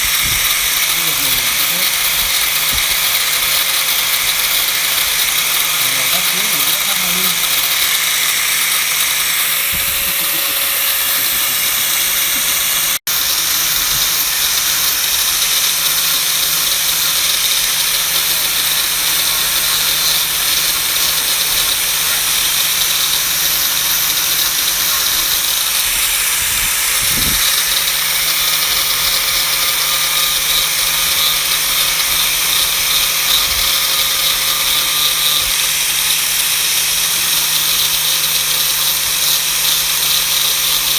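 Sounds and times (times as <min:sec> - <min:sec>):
power tool grinding metal: 0:00.0 - 0:40.9.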